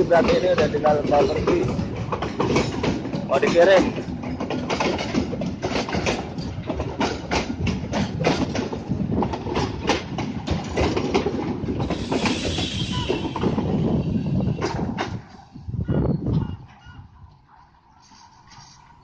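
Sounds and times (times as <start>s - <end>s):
train wheels clacking over rail joints: 0.0s - 15.6s
rushing hiss: 11.8s - 14.4s.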